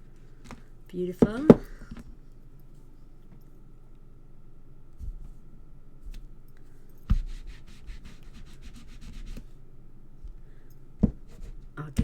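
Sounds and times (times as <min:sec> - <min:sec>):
rubber stamp knocking on surface: 0:01.2 - 0:02.0, 0:11.0 - 0:11.4
stamp rubbing against pad: 0:07.1 - 0:09.5, 0:11.0 - 0:11.7.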